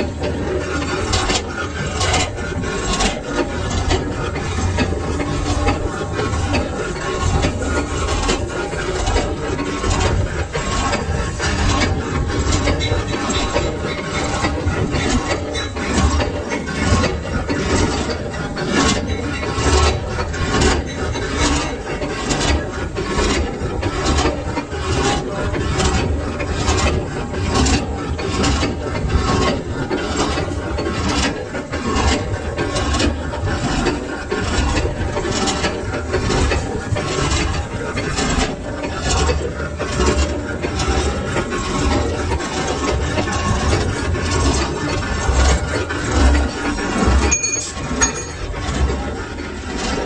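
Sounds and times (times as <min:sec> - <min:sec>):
metal scraping on lathe: 0:00.0 - 0:50.0
lathe humming: 0:44.0 - 0:50.0.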